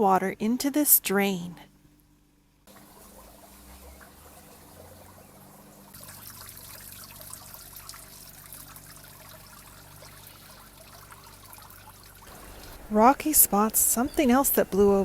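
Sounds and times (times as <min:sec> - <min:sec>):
water pouring into a drain: 0:02.7 - 0:13.6.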